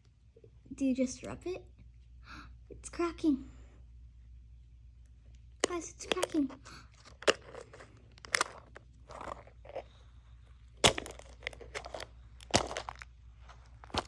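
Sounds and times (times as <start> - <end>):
toy egg shell cracking: 5.6 - 14.0.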